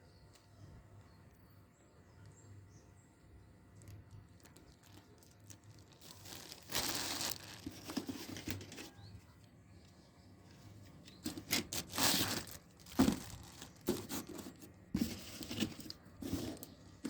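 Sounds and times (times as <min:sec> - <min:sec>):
packaging crinkling: 0:03.8 - 0:09.0, 0:11.1 - 0:17.0
packaging rustling: 0:03.8 - 0:09.0, 0:11.1 - 0:16.8.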